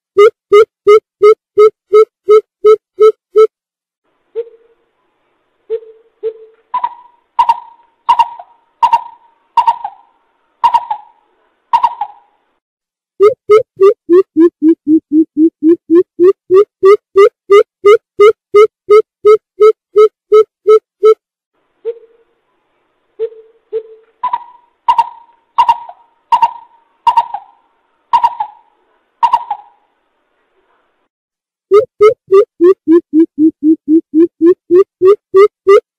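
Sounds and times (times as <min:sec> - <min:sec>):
bird hooting calls: 0:23.8 - 0:29.8.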